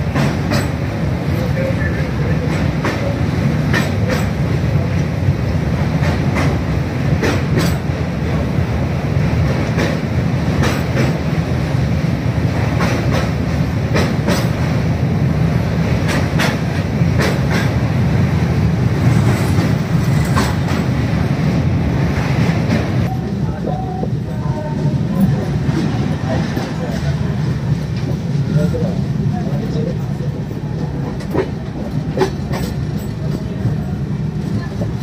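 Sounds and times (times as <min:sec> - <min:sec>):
wheels clicking over rail joints: 0:00.0 - 0:01.5, 0:02.3 - 0:05.2, 0:06.0 - 0:07.9, 0:12.6 - 0:14.8, 0:16.0 - 0:17.8, 0:19.0 - 0:20.9, 0:30.8 - 0:33.8
train wheels rumbling on rails: 0:00.0 - 0:35.0.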